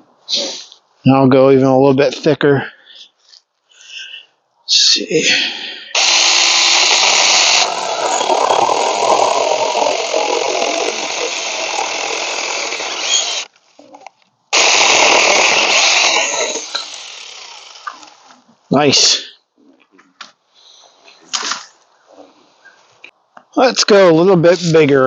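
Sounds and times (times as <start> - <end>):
chainsaw cutting through branch: 6.0 - 13.5, 14.5 - 18.2.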